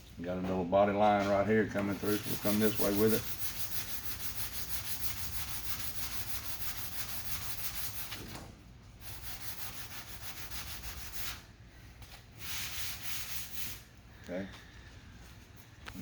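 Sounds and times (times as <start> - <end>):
sanding block rubbing: 1.8 - 8.2, 9.0 - 11.4, 12.4 - 13.8.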